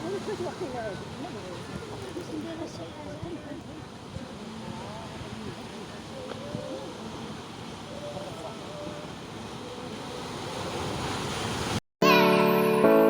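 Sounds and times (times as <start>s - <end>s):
sea surf washing on shore: 0.0s - 11.8s
piano music: 12.0s - 13.0s.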